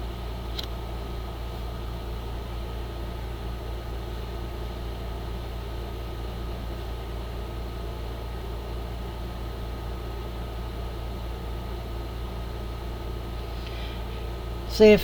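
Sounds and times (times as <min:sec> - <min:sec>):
low background hum: 0:00.0 - 0:15.0
small click: 0:00.5 - 0:00.8.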